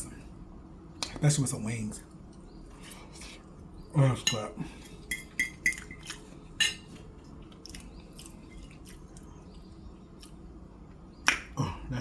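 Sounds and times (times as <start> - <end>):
person chewing: 4.8 - 10.5.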